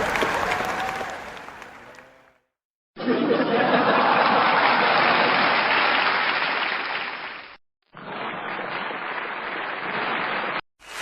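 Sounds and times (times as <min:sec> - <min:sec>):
crowd applause: 0:00.0 - 0:02.4, 0:03.5 - 0:07.6.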